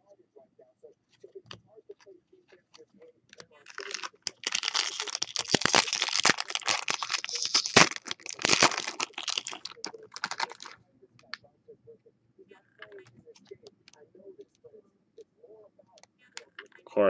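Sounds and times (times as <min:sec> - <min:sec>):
foil wrapper crinkling and tearing: 0:03.7 - 0:10.8.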